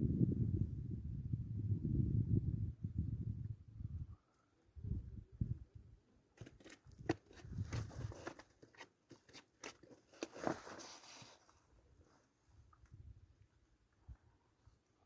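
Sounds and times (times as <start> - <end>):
handling clicks and rustle: 6.4 - 11.6.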